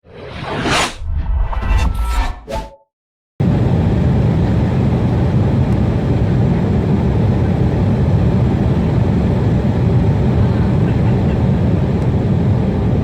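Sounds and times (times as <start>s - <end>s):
jet engine rumble in cabin: 3.4s - 13.0s.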